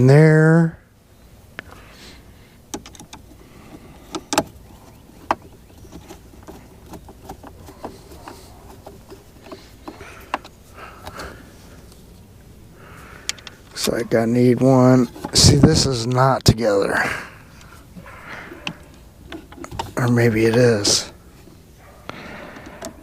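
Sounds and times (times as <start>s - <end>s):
plastic parts and screws clicking: 2.7s - 11.3s, 18.5s - 21.0s.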